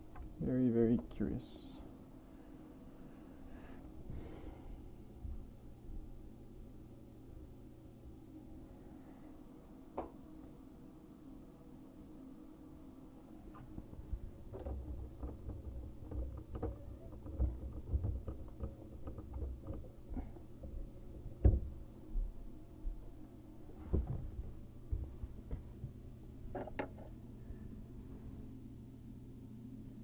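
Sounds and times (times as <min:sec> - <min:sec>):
tools knocking on pipe: 0:14.4 - 0:21.8.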